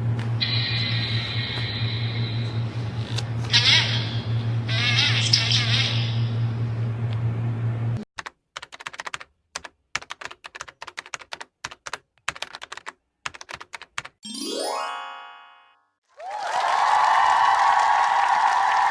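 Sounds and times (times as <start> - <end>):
computer keyboard typing: 8.2 - 14.2.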